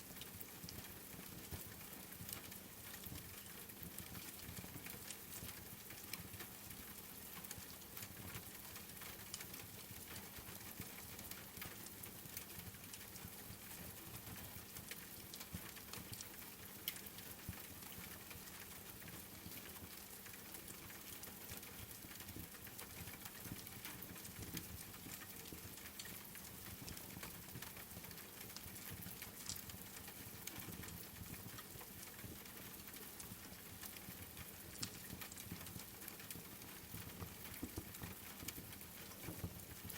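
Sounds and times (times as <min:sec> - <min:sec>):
rain pattering: 0:00.0 - 0:39.9
wood fire crackling: 0:30.8 - 0:39.9.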